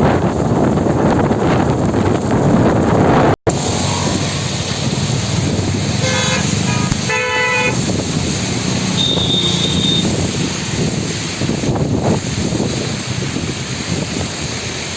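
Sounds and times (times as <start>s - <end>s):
road traffic: 0.0s - 14.9s
vehicle horns honking: 5.9s - 8.0s, 8.8s - 10.3s.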